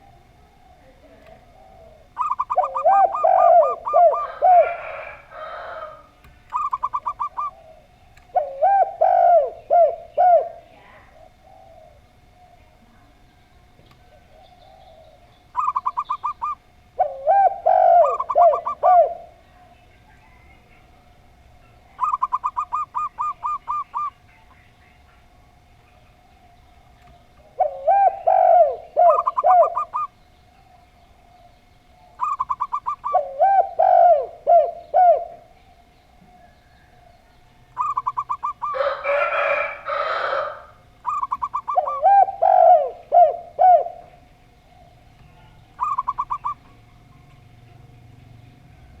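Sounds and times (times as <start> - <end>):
doves cooing: 0.0 - 49.0.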